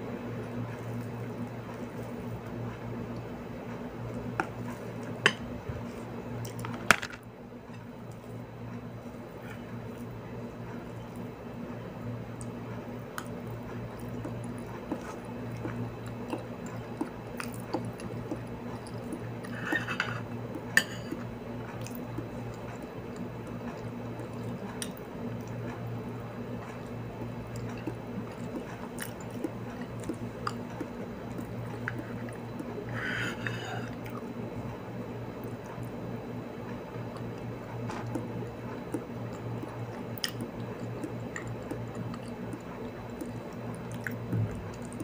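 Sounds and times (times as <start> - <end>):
chewing and mouth noises: 12.3 - 36.0, 36.7 - 45.0.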